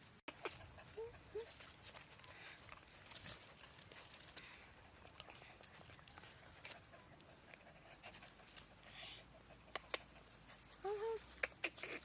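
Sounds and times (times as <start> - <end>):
soft rustles: 0.4 - 7.0.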